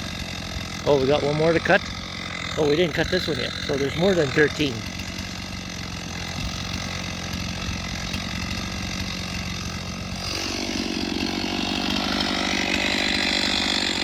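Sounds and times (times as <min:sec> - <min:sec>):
chainsaw idling and revving: 0:00.0 - 0:14.0.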